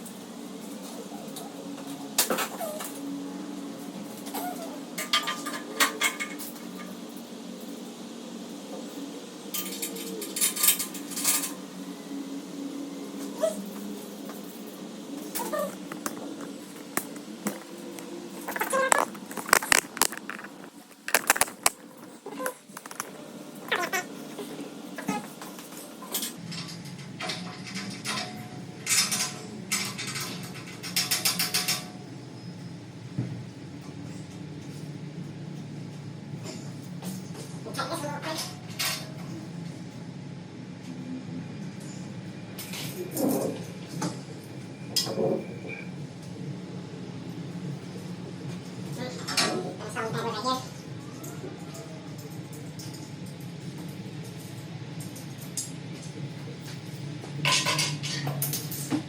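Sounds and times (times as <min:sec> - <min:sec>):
steady low hum: 0:04.8 - 0:37.7
parts clattering and knocking: 0:15.3 - 0:24.1.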